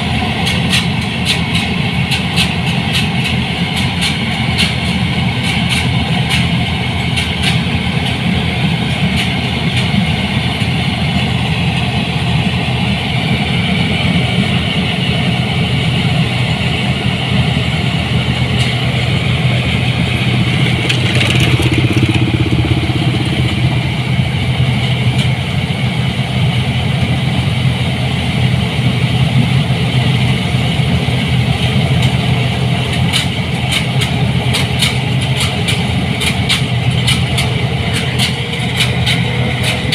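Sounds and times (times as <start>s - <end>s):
diesel engine running: 5.0s - 39.9s
machinery clattering: 19.6s - 25.7s.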